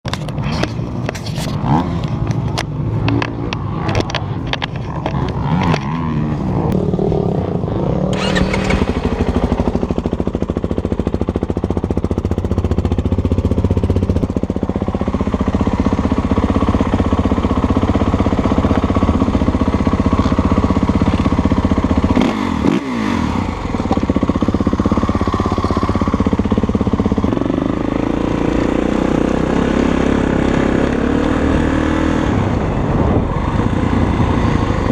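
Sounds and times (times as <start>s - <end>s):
dirt bike engine revving: 0.4s - 2.2s, 2.8s - 34.9s
wind on microphone: 32.2s - 34.9s.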